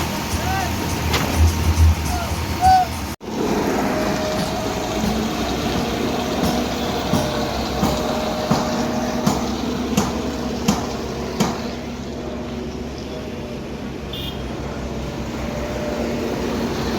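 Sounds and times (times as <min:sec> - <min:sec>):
steady knocking: 0:04.4 - 0:11.8.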